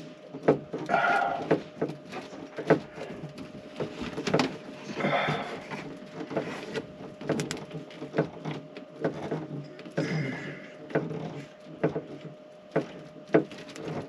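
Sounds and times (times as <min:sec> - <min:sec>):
faint steady hum: 0:00.0 - 0:14.0
scraping rustle: 0:00.0 - 0:14.0.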